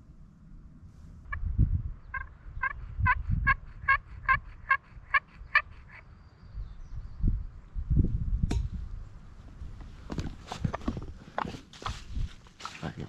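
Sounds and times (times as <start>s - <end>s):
wind buffeting microphone: 0.9s - 13.0s
turkey yelps: 3.4s - 6.0s.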